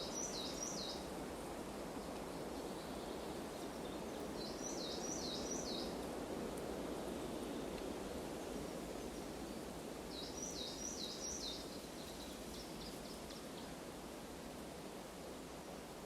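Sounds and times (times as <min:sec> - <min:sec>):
songbird singing: 0:00.0 - 0:01.1, 0:02.0 - 0:06.0, 0:08.6 - 0:13.8.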